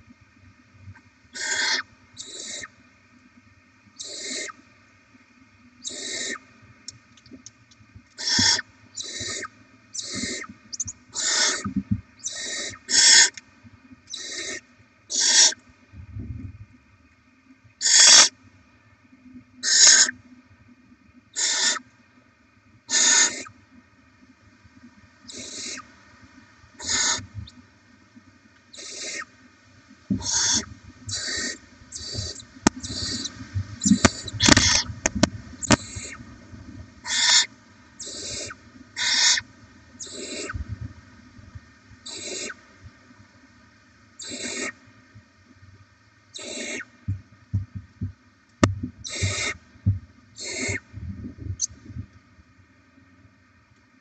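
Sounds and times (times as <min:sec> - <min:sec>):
owl nestlings hissing: 0:01.4 - 0:02.8, 0:04.0 - 0:04.6, 0:05.8 - 0:06.4, 0:08.2 - 0:13.4, 0:14.1 - 0:15.6, 0:17.8 - 0:18.3, 0:19.6 - 0:20.2, 0:21.4 - 0:21.8, 0:22.9 - 0:23.5, 0:25.3 - 0:25.9, 0:26.8 - 0:27.6, 0:28.7 - 0:29.3, 0:30.2 - 0:36.2, 0:37.0 - 0:40.6, 0:42.0 - 0:42.6, 0:44.2 - 0:44.8, 0:46.3 - 0:46.9, 0:49.0 - 0:49.6, 0:50.4 - 0:50.8.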